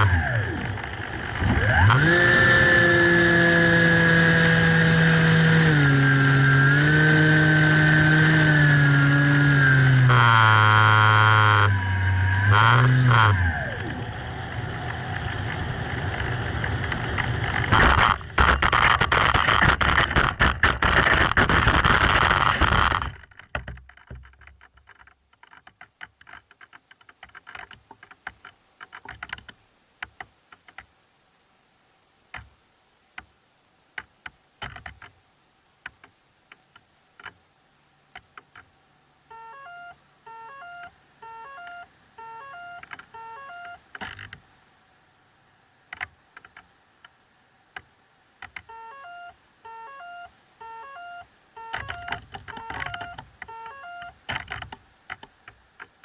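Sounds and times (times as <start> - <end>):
sharp clicks: 14.5 - 30.9, 42.6 - 44.4, 51.6 - 56.0
short electronic beeps: 39.3 - 43.8, 48.7 - 54.2.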